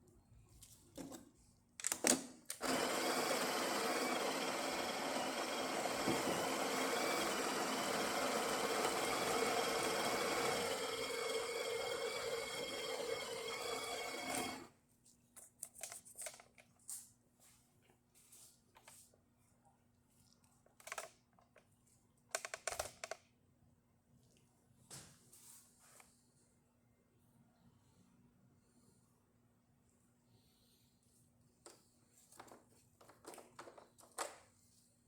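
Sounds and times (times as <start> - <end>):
espresso machine running: 2.6 - 14.7.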